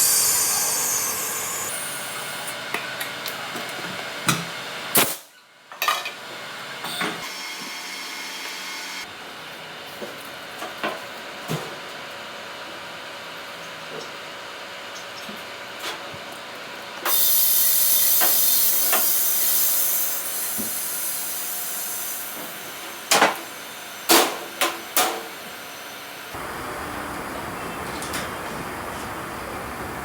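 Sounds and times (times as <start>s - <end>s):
compressed air hissing: 0.0s - 2.2s, 26.4s - 30.0s.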